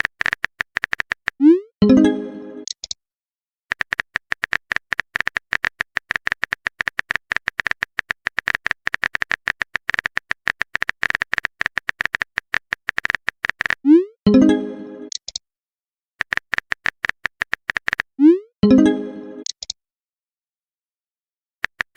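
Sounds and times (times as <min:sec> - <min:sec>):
phone keyboard typing clicks: 0:00.0 - 0:01.4, 0:02.6 - 0:03.0, 0:03.7 - 0:13.9, 0:15.1 - 0:15.4, 0:16.2 - 0:18.1, 0:19.4 - 0:19.8, 0:21.6 - 0:21.9.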